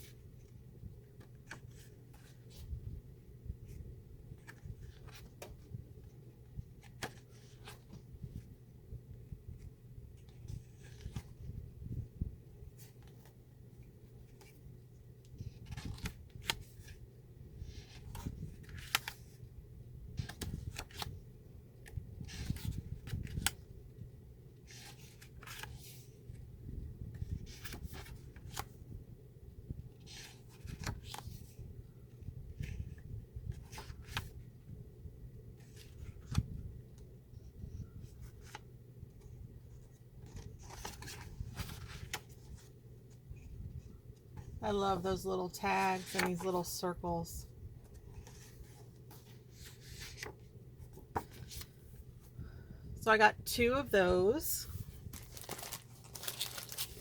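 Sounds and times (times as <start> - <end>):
paper rustling: 39.2 - 43.5, 45.7 - 46.8, 47.8 - 52.1, 54.7 - 57.0.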